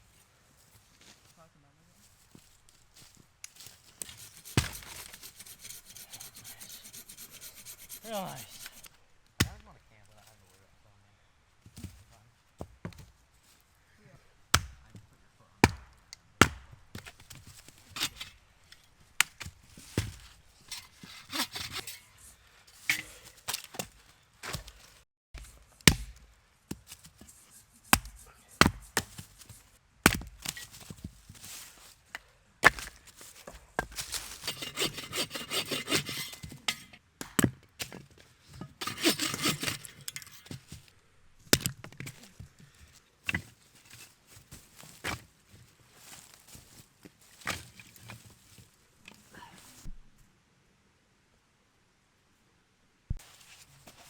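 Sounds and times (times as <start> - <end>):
hand sawing wood: 4.0 - 9.0, 20.8 - 22.3, 33.8 - 36.8, 38.8 - 40.5
axe chopping wood: 4.6 - 5.2, 9.4 - 9.6, 14.5 - 15.0, 15.6 - 17.3, 25.4 - 26.8, 27.9 - 29.3, 30.0 - 30.7, 32.6 - 33.0, 37.2 - 38.0.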